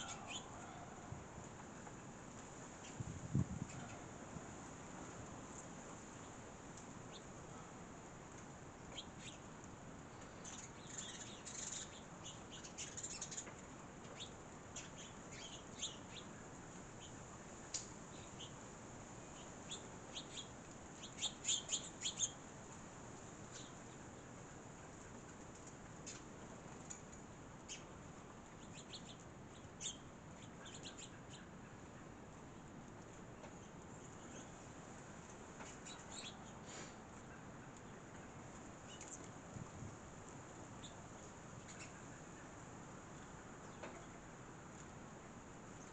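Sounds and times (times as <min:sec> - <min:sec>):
small birds chirping: 0:00.0 - 0:01.0, 0:07.0 - 0:07.4, 0:08.8 - 0:22.5, 0:23.2 - 0:25.2, 0:25.9 - 0:32.2, 0:33.3 - 0:39.4, 0:40.4 - 0:44.8.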